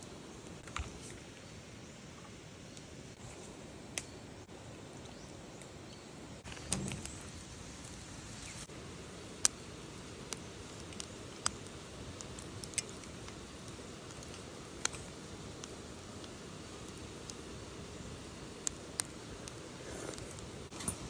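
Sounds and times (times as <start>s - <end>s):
campfire burning: 0.0s - 21.0s
fire crackling pops: 6.4s - 21.0s.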